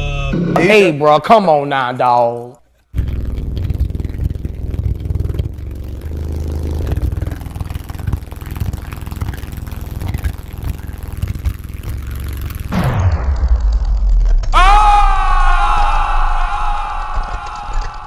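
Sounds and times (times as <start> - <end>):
buzzing rattle: 2.8 - 14.5
subwoofer deep bass rumble: 3.0 - 18.0.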